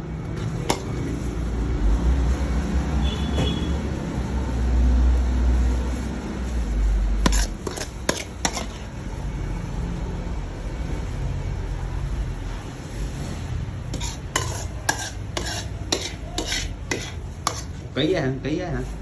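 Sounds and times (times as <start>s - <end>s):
steady background noise: 0.0s - 19.0s
utensils clinking against cookware: 0.4s - 1.3s, 7.2s - 9.0s, 13.9s - 18.2s.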